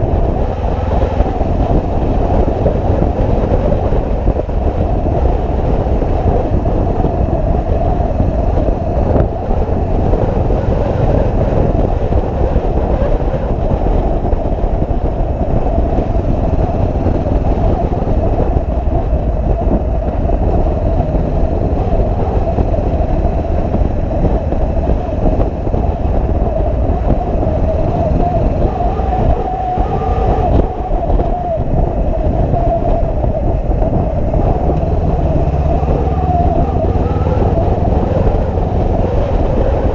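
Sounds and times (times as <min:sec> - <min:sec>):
motorcycle engine: 0:00.0 - 0:14.8, 0:33.8 - 0:39.9
road and wind rumble: 0:00.0 - 0:39.9.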